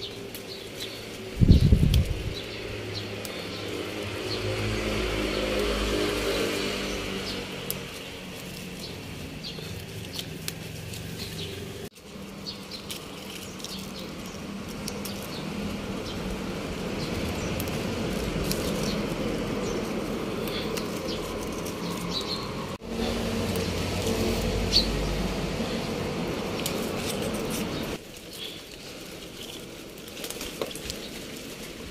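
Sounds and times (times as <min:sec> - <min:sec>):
leaves rustling: 0:00.0 - 0:31.9
outdoor background hum: 0:00.0 - 0:31.9
stems snapping: 0:00.0 - 0:31.9.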